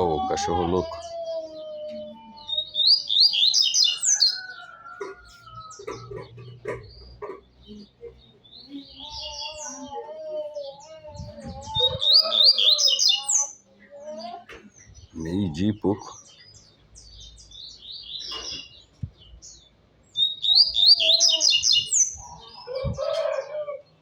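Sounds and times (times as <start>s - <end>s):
bird singing rapid high notes: 20.2s - 22.2s.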